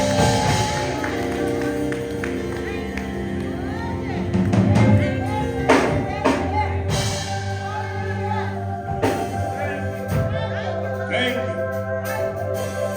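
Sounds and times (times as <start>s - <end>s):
drum hits: 0.0s - 3.2s, 3.8s - 10.6s
voices singing: 0.0s - 12.5s
sustained held chords: 0.0s - 12.9s.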